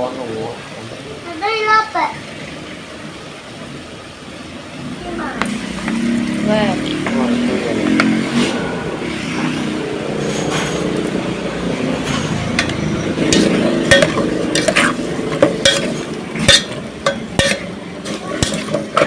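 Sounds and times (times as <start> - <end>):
food sizzling in a hot pan: 4.4 - 19.0
utensil clinking and scraping pan: 7.0 - 11.0, 11.6 - 19.0.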